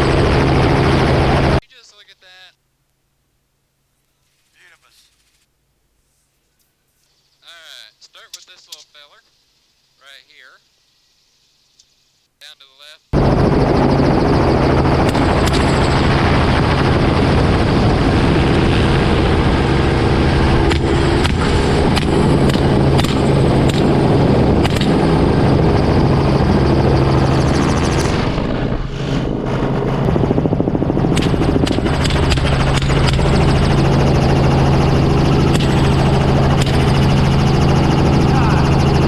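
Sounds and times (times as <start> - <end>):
helicopter flying: 0.0 - 1.6, 13.2 - 39.0
rifle shots: 31.1 - 33.5.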